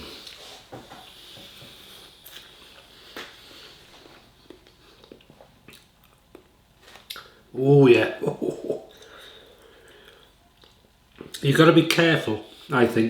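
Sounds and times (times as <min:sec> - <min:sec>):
person chewing: 0:01.1 - 0:07.4, 0:08.8 - 0:11.4.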